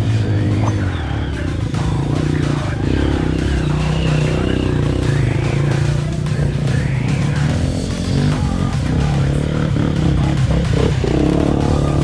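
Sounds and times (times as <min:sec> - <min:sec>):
motorcycle engines running: 0:00.0 - 0:12.0.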